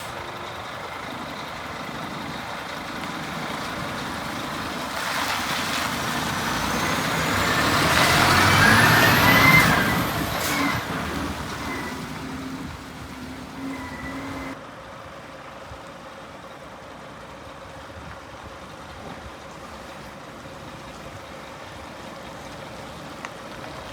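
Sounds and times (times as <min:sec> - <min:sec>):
truck engine running: 0:00.0 - 0:23.9
thin high whistle: 0:13.6 - 0:14.6.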